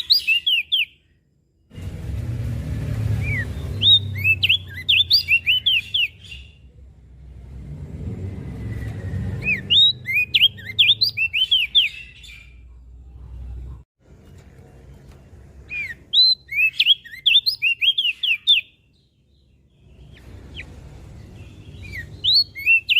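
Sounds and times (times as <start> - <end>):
bird singing sharp chirps: 0.0 - 1.1, 3.0 - 6.7, 8.4 - 12.7, 15.7 - 22.9.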